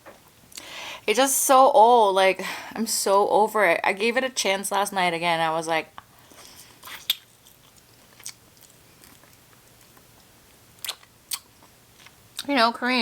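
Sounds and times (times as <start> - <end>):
person chewing: 6.2 - 12.2
wet mouth clicks and smacks: 6.8 - 10.1, 10.8 - 12.5.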